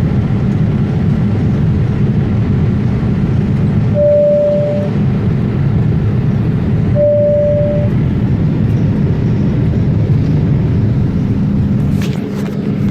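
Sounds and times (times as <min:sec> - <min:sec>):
jet engines rumbling: 0:00.0 - 0:12.9
single beep: 0:04.0 - 0:05.0, 0:07.0 - 0:08.0.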